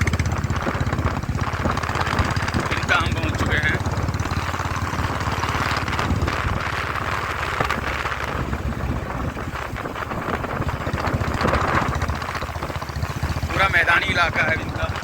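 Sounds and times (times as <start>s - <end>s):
motorcycle engine running: 0.0s - 15.0s
wind noise on microphone: 0.0s - 15.0s.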